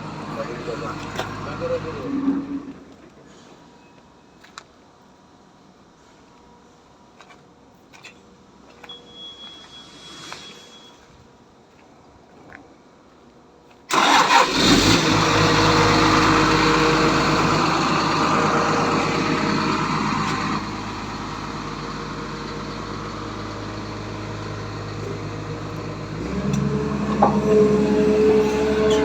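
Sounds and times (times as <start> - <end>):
excavator diesel engine: 0.0 - 3.0, 13.9 - 29.0.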